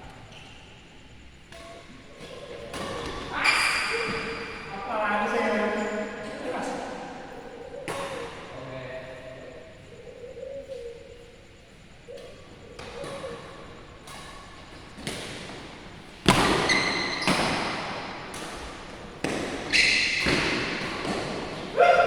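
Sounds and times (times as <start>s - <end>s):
badminton rackets hitting shuttlecock: 14.0s - 22.0s.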